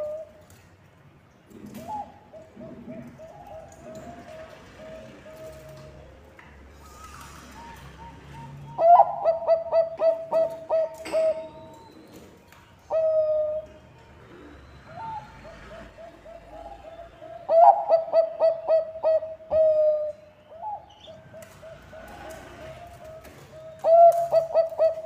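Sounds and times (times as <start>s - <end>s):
dove cooing: 0.0s - 0.4s, 1.5s - 12.2s, 12.9s - 25.0s.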